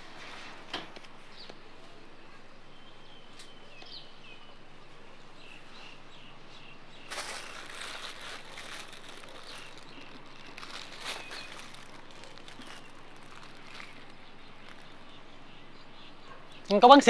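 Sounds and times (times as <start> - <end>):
outdoor background noise: 0.0 - 17.0
small birds chirping: 1.2 - 17.0
rustling and clicks: 7.1 - 15.1.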